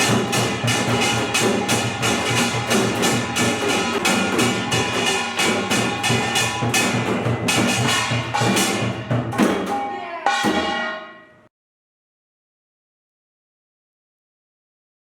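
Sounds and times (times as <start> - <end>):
barrel drums beating: 0.0 - 11.2
hourglass drums beating: 0.0 - 11.2.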